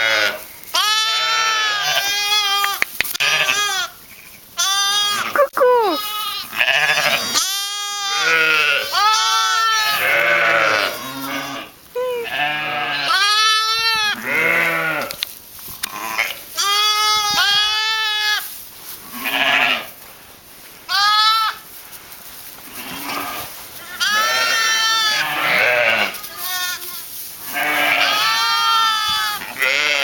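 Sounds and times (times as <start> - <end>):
ewes bleating: 0.0 - 4.0, 4.6 - 15.1, 19.1 - 19.9, 22.7 - 30.0
lambs bleating: 0.0 - 4.0, 4.6 - 15.2, 15.8 - 19.9, 20.9 - 21.6, 22.7 - 30.0.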